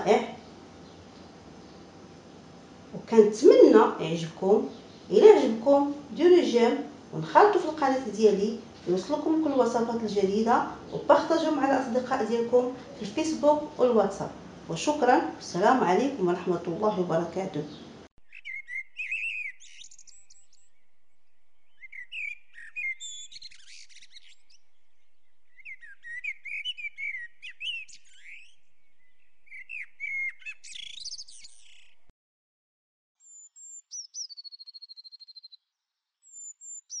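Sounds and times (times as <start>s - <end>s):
birds chirping and twittering: 0.0s - 32.1s, 33.2s - 37.0s
bird whistle sliding into trill: 18.3s - 20.8s.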